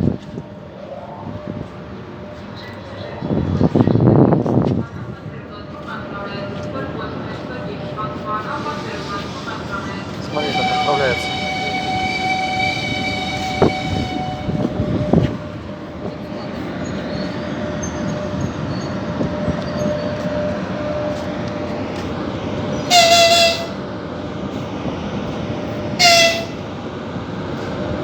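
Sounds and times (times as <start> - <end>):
train rumbling: 0.0 - 28.0
train horn blasts: 10.2 - 15.6, 22.8 - 23.9, 26.0 - 26.7.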